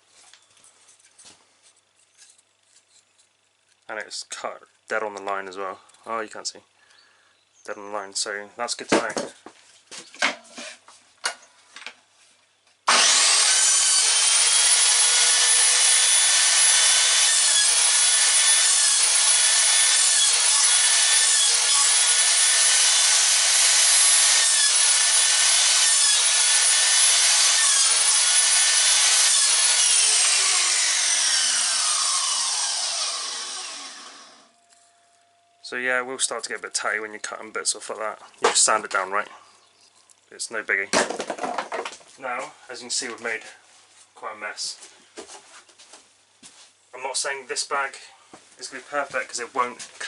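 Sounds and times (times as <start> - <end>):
saw blade spinning down: 12.9 - 34.6
saw blade cutting wood: 12.9 - 34.9
mitre saw whining: 12.9 - 35.8.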